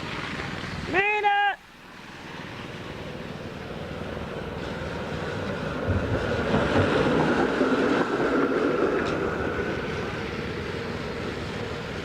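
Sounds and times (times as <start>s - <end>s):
motor vehicle passing: 2.0s - 12.0s.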